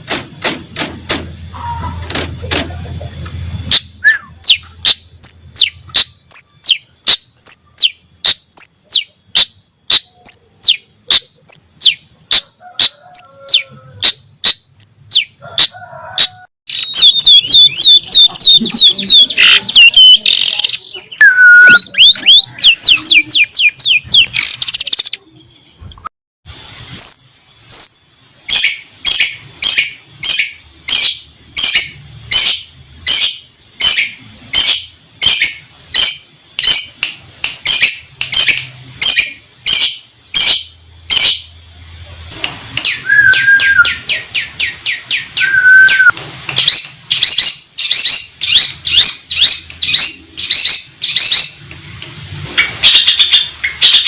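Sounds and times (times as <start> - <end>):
shrike singing: 16.7 - 25.8, 42.9 - 46.1.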